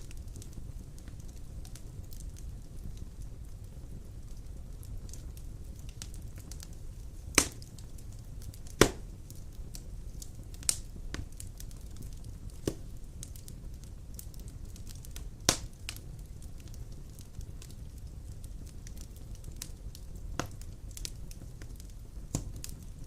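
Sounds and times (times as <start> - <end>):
burning logs popping: 0.0 - 23.0
fire crackling: 0.0 - 23.0
fire rumbling: 0.0 - 23.0.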